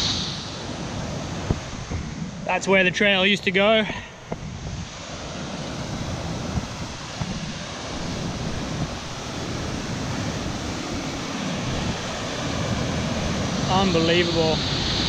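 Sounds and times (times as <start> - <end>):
wind buffeting microphone: 0.0 - 15.0
river rapid rushing: 3.5 - 15.0.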